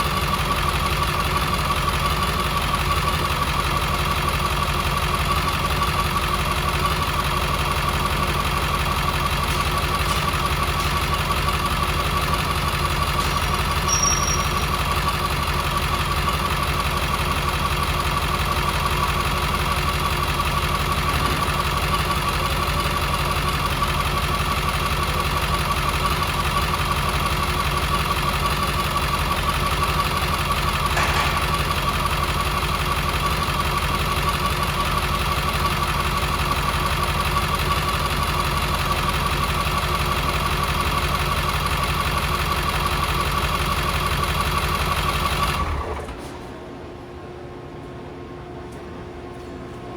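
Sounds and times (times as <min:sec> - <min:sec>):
diesel engine idling: 0:00.0 - 0:49.9
high-pitched chirp: 0:13.9 - 0:14.6.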